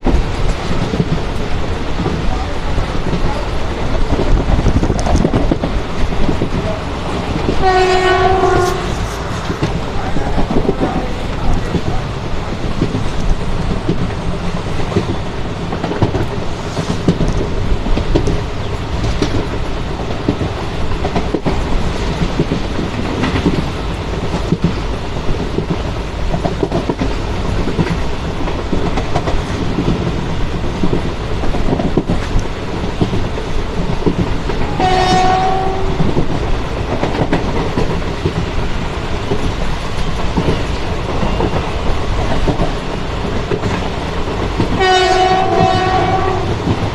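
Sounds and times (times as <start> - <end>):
train rumbling: 0.0 - 46.9
wheels clacking over rail joints: 0.0 - 46.9
train horn blast: 7.6 - 9.6, 34.7 - 36.0, 44.8 - 46.6.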